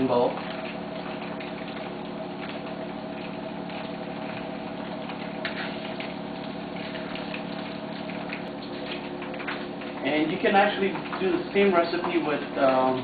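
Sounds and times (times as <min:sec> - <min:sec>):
mechanical hum: 0:00.0 - 0:13.0
oil sizzling in a wok: 0:00.6 - 0:10.0.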